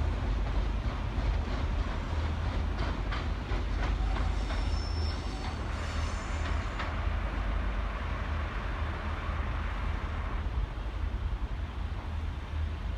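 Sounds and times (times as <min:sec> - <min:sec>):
train rumble and hiss: 0:00.0 - 0:12.9
train wheels squealing: 0:03.8 - 0:07.2.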